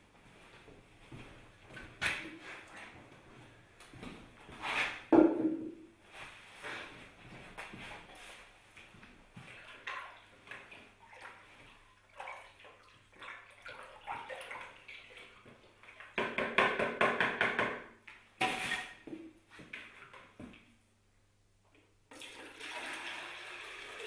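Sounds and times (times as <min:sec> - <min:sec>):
water splashing and trickling: 0:09.4 - 0:16.2.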